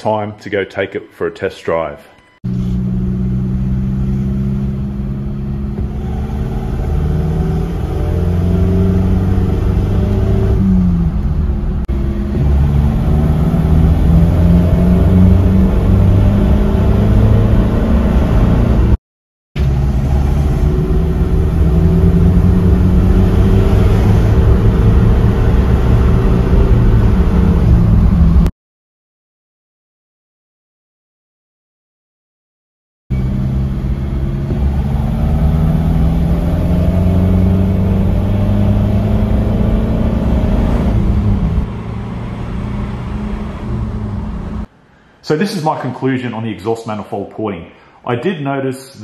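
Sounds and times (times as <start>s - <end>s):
diesel engine accelerating: 2.4s - 19.0s, 19.6s - 28.5s, 33.1s - 44.7s.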